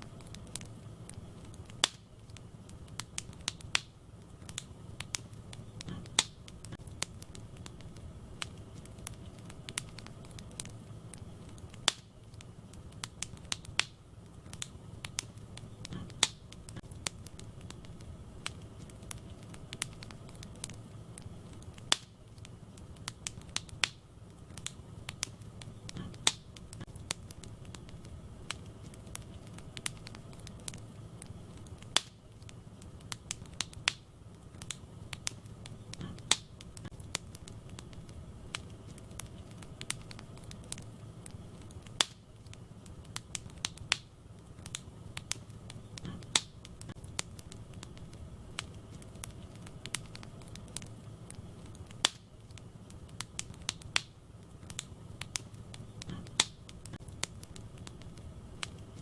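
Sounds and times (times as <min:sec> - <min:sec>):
burning wood snapping: 0:00.0 - 0:59.0
fire rumbling: 0:00.0 - 0:59.0
wood fire crackling and popping: 0:00.0 - 0:59.0.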